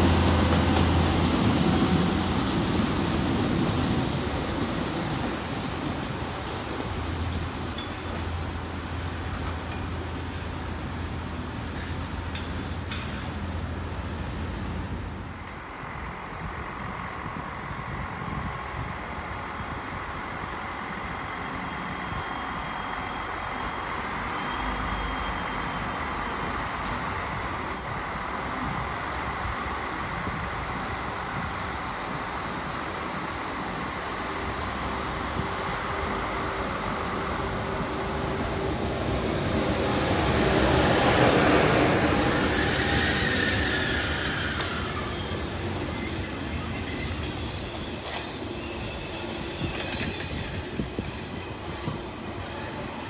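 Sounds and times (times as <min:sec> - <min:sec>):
train rolling past: 0:00.0 - 0:53.0.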